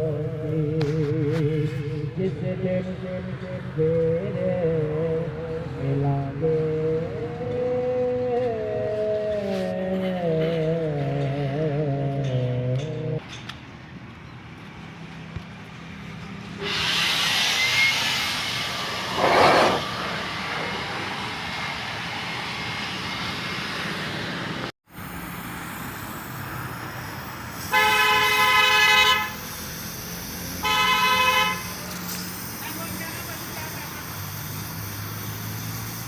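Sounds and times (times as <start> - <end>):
vehicle passing by: 18.0 - 27.7, 31.6 - 36.0
vehicle horn toot: 27.6 - 29.4, 30.6 - 31.8.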